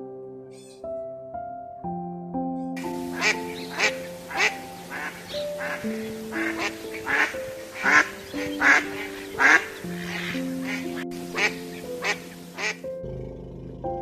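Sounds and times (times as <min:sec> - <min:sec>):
background music with sustained notes: 0:00.0 - 0:14.0
duck quacking: 0:03.0 - 0:12.8.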